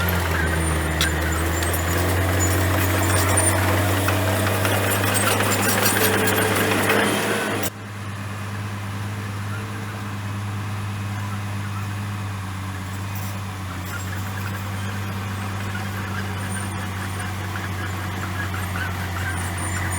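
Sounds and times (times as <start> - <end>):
machine clattering and scraping: 0.0 - 7.7, 12.8 - 19.9
bulldozer diesel engine running: 0.0 - 19.9.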